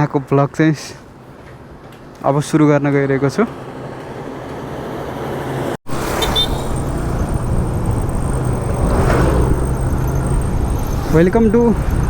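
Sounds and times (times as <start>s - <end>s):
road traffic engines: 1.0s - 12.0s
vehicle passing close by: 3.6s - 12.0s.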